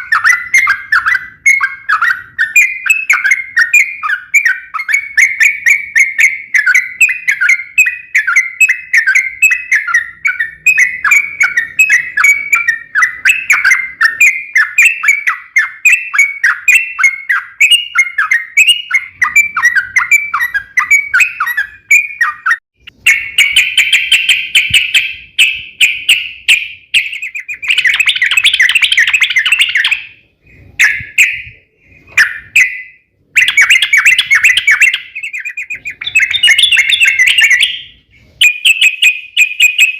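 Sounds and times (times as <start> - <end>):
bird chirping and warbling: 0.0 - 39.9.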